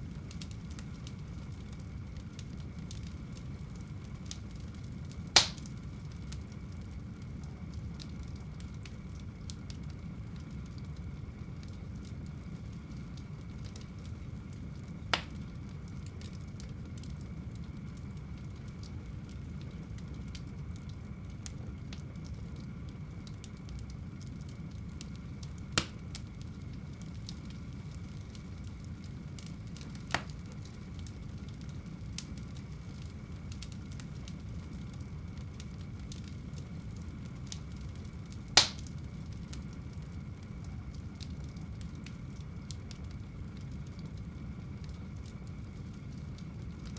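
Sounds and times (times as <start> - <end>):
fire rumbling and crackling: 0.0 - 46.9
sharp fire pops: 5.2 - 5.9, 15.1 - 15.4, 25.7 - 26.2, 29.4 - 30.8, 38.3 - 39.0.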